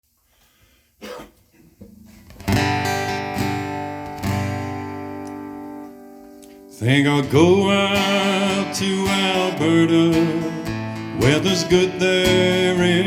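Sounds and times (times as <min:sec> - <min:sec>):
acoustic guitar strumming: 0:01.1 - 0:13.0.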